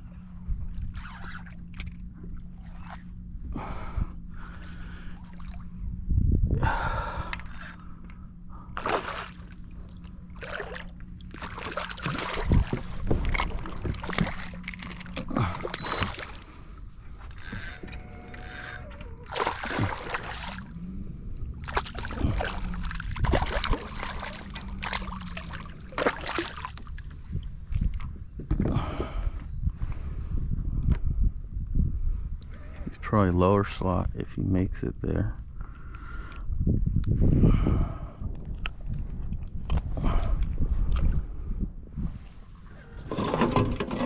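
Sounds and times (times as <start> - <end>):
steady low hum: 0.0 - 44.0
water splashing: 8.8 - 17.8, 18.4 - 27.1.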